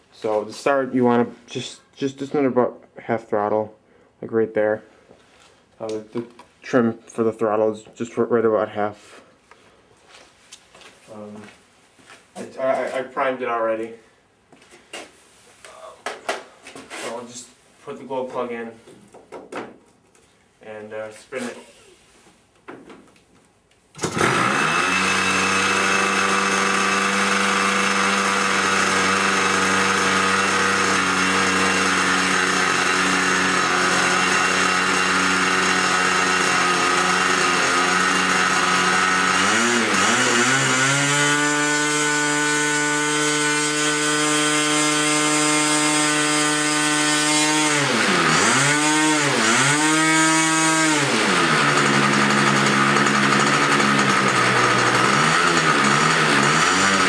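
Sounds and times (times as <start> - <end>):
model airplane engine: 24.0 - 57.0.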